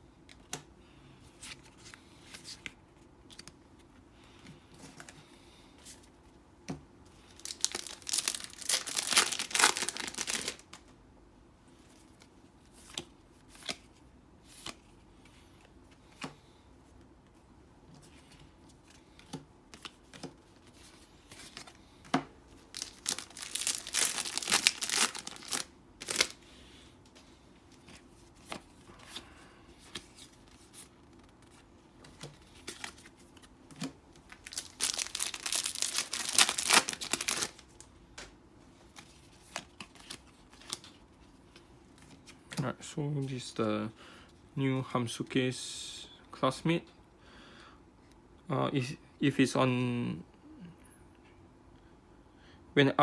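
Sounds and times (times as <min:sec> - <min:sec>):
rustles and clicks of handling: 0:00.2 - 0:11.0, 0:11.8 - 0:43.6
wrappers tearing and crinkling: 0:07.2 - 0:10.8, 0:22.7 - 0:26.4, 0:34.2 - 0:37.8.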